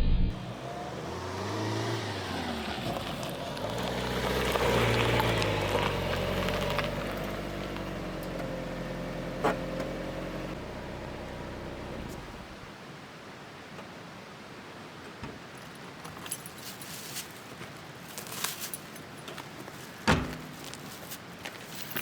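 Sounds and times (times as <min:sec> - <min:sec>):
vehicle engine running: 0:00.0 - 0:12.7.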